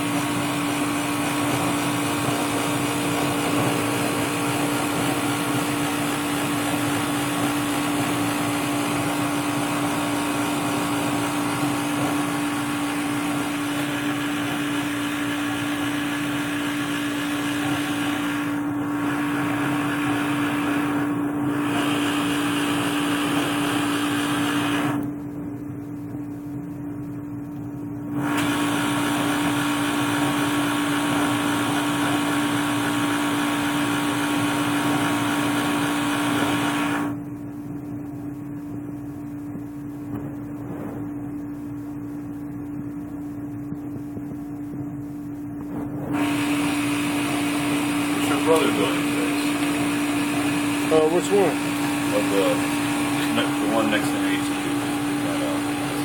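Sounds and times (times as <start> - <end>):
furnace hum: 0.0 - 56.0
furnace whooshing: 45.4 - 56.0.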